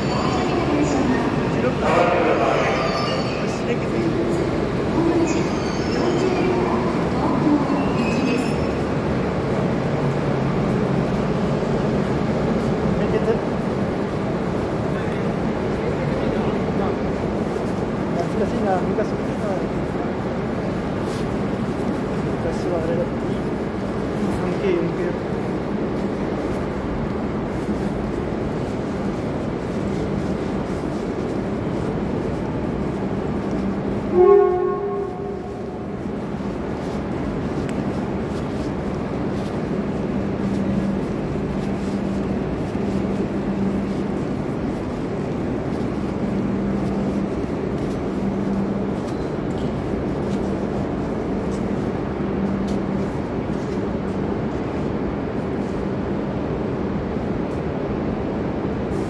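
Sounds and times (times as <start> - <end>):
train low hum: 0.0 - 59.0
train horn blast: 34.0 - 35.9.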